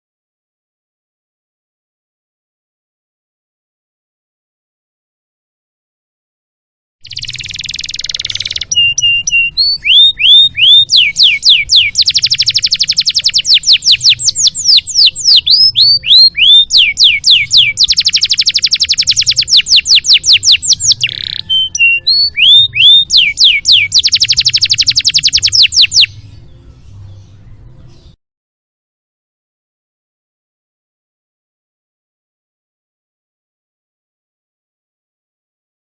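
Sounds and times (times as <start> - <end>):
canary singing trills: 7.0 - 28.2.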